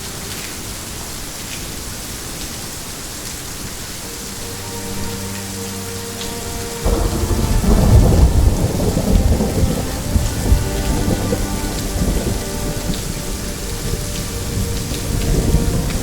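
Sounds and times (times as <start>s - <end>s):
steady rain: 0.0s - 16.0s
thunder rumbling: 6.8s - 16.0s.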